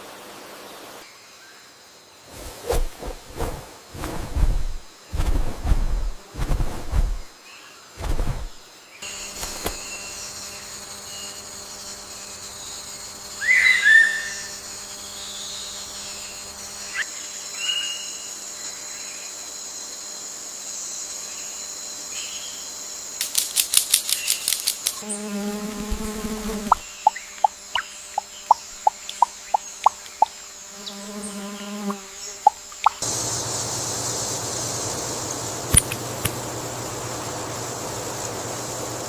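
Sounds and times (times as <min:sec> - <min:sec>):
high insect drone: 0:00.0 - 0:39.0
insect buzzing: 0:02.0 - 0:39.0
bird chirps: 0:26.6 - 0:30.3
rapid ticks: 0:26.7 - 0:30.3.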